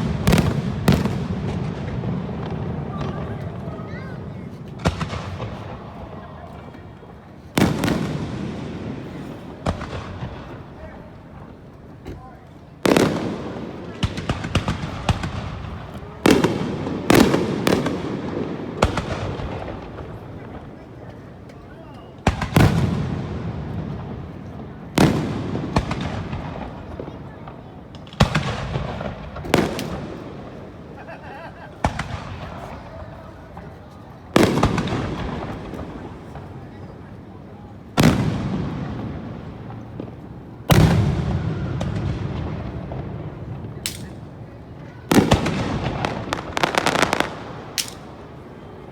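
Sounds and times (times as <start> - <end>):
firework shells booming: 0.0 - 3.6, 12.8 - 20.2, 31.8 - 32.9, 34.3 - 36.6, 38.0 - 44.4, 45.1 - 48.4
fireworks booming with echo: 0.0 - 48.9.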